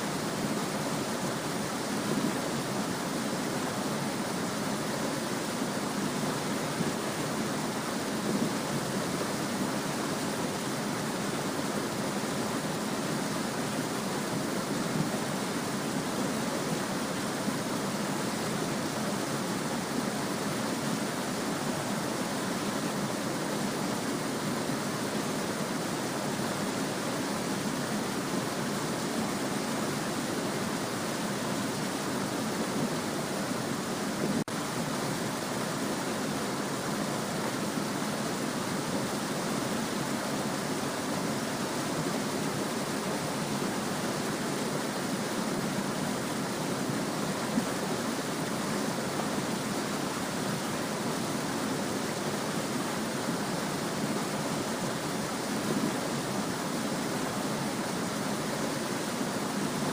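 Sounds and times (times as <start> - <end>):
small stream babbling: 0.0 - 59.9.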